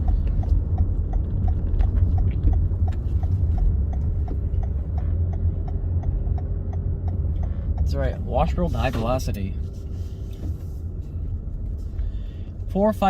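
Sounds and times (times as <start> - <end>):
regular clicking: 0.0 - 9.1
car engine rumble: 0.0 - 13.0.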